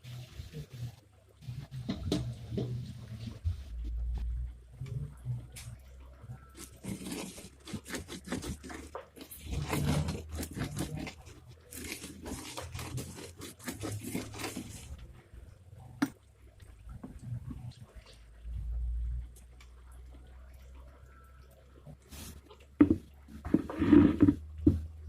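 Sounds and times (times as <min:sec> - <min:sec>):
corn crunching and tearing: 0:06.6 - 0:15.0.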